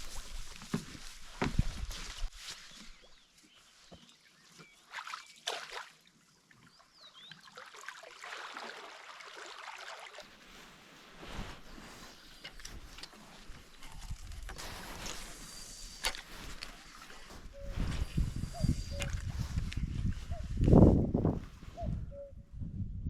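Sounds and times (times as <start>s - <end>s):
water sloshing and splashing: 4.6s - 20.1s.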